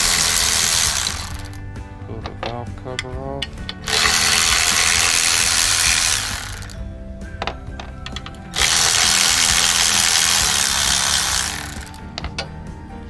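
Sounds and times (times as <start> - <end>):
handheld power tool running: 0.0 - 1.6, 3.8 - 6.8, 8.5 - 12.0.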